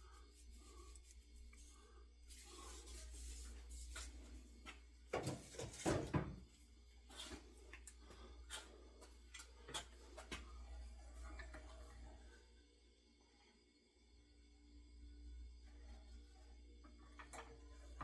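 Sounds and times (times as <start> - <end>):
faint rubbing and shuffling: 0.0 - 5.8
wooden knocks and clunks: 5.1 - 6.4.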